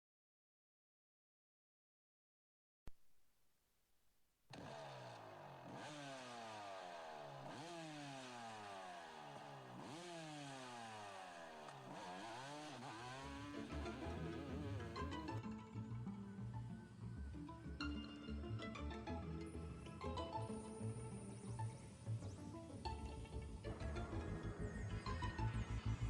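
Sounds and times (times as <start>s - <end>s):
motocross bike engine revving: 4.5s - 15.4s
music: 13.2s - 26.0s.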